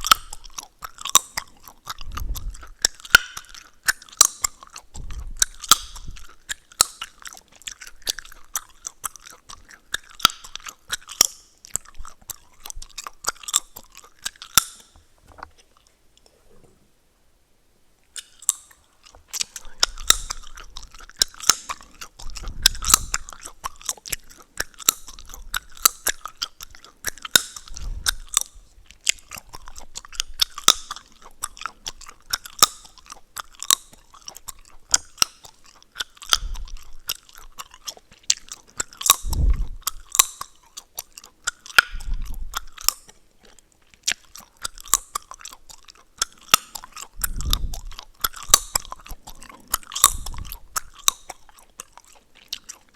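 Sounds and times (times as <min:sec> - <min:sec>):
gum cracking and snapping: 0:00.0 - 0:16.3, 0:18.1 - 0:52.9
wet gum chewing: 0:00.0 - 0:16.7, 0:18.0 - 0:52.9.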